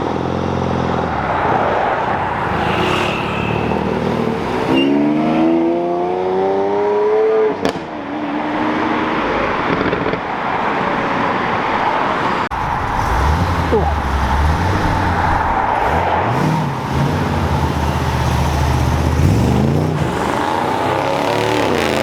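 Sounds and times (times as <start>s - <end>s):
other car engine: 0.0s - 7.9s, 9.2s - 22.0s
road noise: 0.0s - 22.0s
car accelerating hard: 12.5s - 22.0s.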